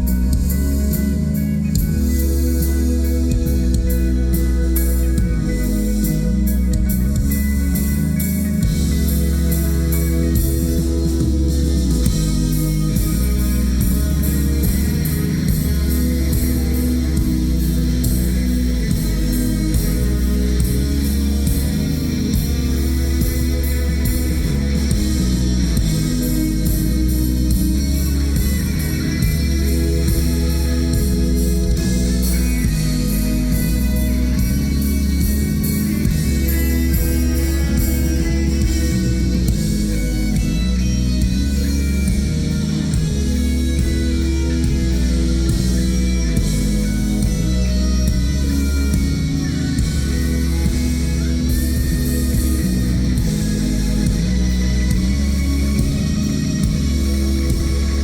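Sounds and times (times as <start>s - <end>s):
bass and drum beat: 0.0s - 58.0s
electric guitars: 0.0s - 58.0s
rock band playing: 0.0s - 58.0s.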